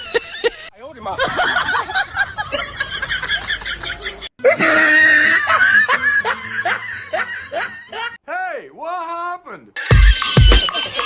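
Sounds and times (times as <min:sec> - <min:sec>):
loud laugh: 0:00.0 - 0:08.2.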